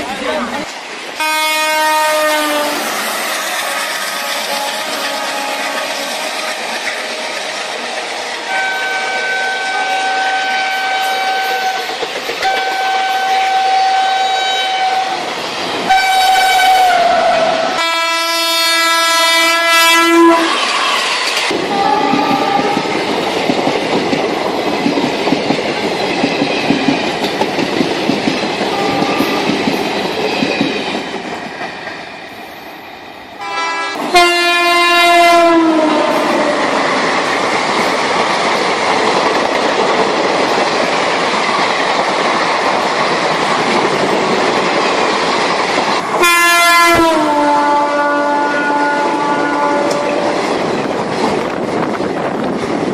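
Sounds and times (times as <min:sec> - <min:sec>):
train wheels rattling on track: 0:00.0 - 0:52.9
train horn blasts: 0:01.2 - 0:03.0, 0:03.6 - 0:06.8, 0:08.4 - 0:15.2, 0:15.9 - 0:20.8, 0:21.6 - 0:22.9, 0:28.7 - 0:29.6, 0:33.4 - 0:36.8, 0:46.2 - 0:50.4.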